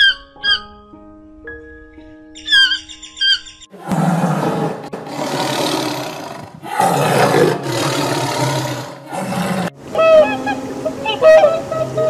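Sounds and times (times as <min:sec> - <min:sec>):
lion roaring: 0:03.7 - 0:09.8.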